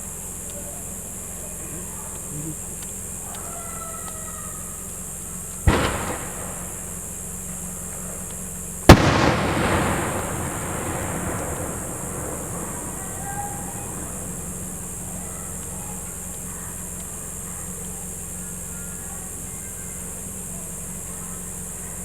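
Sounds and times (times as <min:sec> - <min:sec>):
rolling echo: 0:03.1 - 0:22.0
firework shells bursting: 0:04.8 - 0:18.7.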